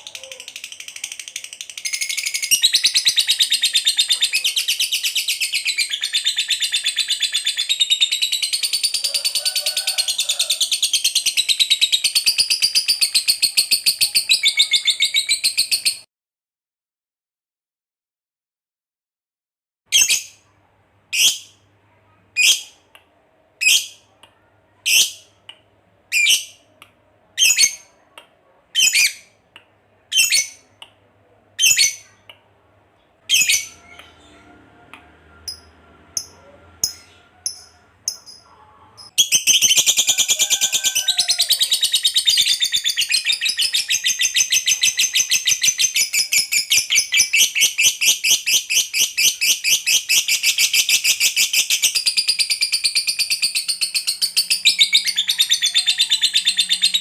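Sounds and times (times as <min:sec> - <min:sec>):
lovebird calling and chattering: 0:00.0 - 0:09.4, 0:33.3 - 0:34.4, 0:35.5 - 0:57.0.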